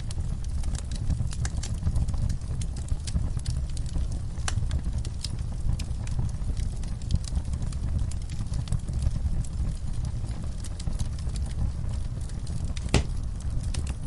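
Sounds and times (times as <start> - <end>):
fire crackling and popping: 0.0 - 14.0
sharp wood crack: 12.9 - 13.2.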